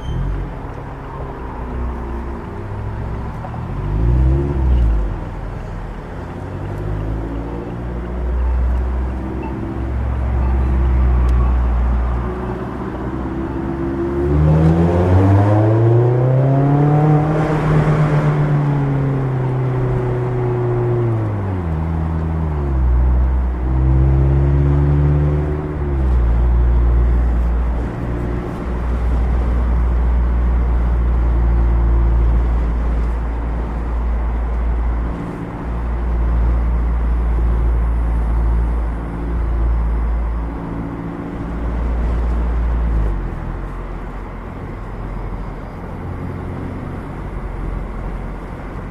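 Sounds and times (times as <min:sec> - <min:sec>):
car engine revving: 0:02.6 - 0:33.9.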